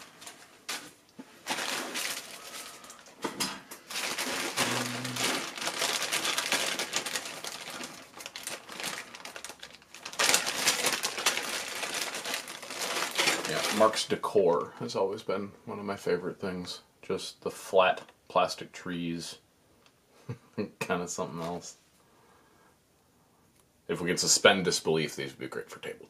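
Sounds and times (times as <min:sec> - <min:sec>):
plastic toy pieces rustling: 0:00.0 - 0:14.0.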